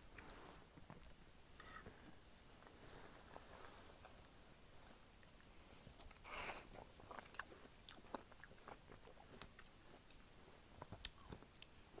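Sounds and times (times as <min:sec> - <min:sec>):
faint chewing with clicks: 0:04.0 - 0:12.0.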